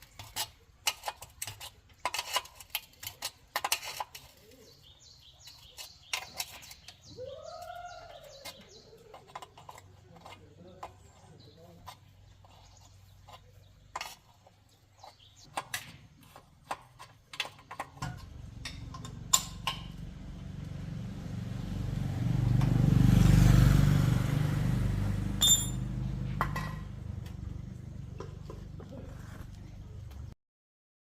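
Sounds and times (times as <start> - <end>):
motorcycle engine running: 18.2 - 30.3.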